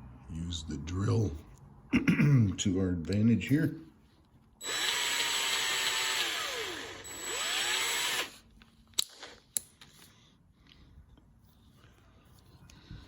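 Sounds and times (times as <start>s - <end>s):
electric drill whine: 4.6s - 8.4s.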